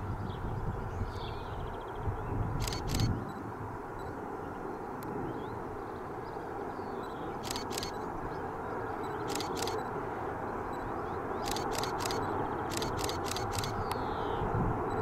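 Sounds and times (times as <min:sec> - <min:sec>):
sharp clicks of train wheels: 0:02.6 - 0:03.1, 0:07.4 - 0:08.0, 0:09.2 - 0:09.8, 0:11.4 - 0:14.0.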